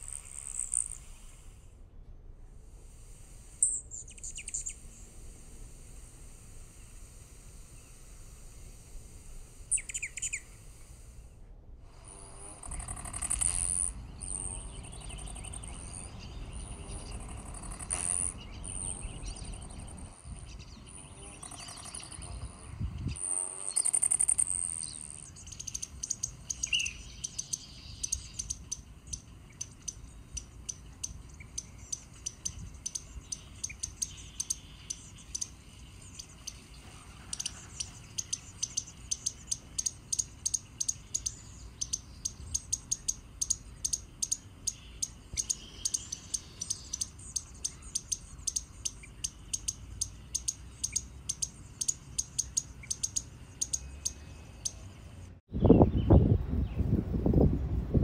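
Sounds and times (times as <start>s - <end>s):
bird rapid sharp chirps: 3.6s - 5.0s, 9.7s - 10.6s, 12.6s - 54.9s.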